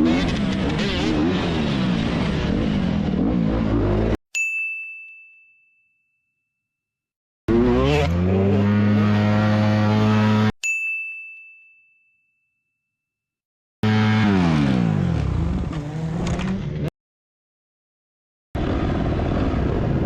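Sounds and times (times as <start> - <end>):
dirt bike engine revving: 0.0 - 4.2, 7.5 - 10.5, 13.8 - 16.9
high bell-like ding: 4.3 - 6.6, 10.6 - 12.8.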